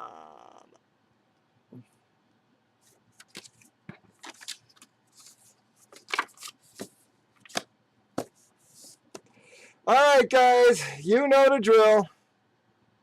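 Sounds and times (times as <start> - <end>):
packaging crinkling and clicking: 4.2 - 5.0, 5.9 - 7.6.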